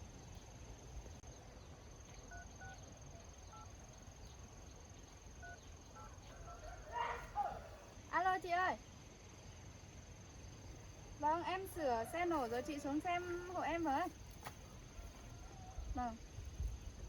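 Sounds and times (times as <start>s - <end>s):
crickets trilling: 0.0s - 17.0s
telephone keypad tones: 2.3s - 2.8s.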